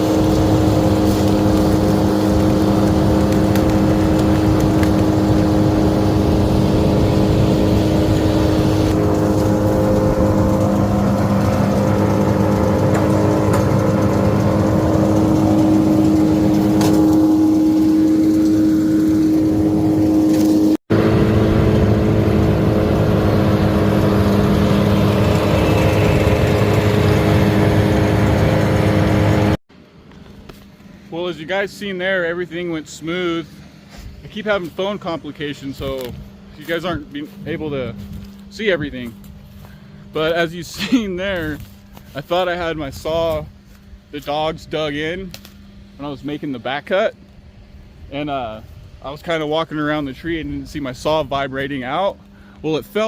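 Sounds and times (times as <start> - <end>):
small gasoline engine running: 0.0 - 29.6.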